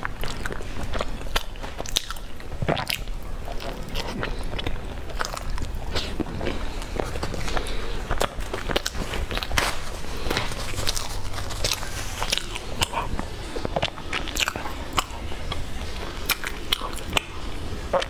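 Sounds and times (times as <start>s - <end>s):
chewing crunchy food: 0.0s - 18.0s.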